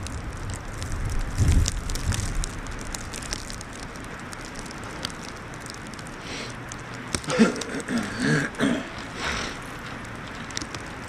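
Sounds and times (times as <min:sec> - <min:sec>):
wind on microphone: 0:00.0 - 0:03.0
outdoor hiss: 0:00.0 - 0:11.0
sharp crackling ticks: 0:00.0 - 0:11.0.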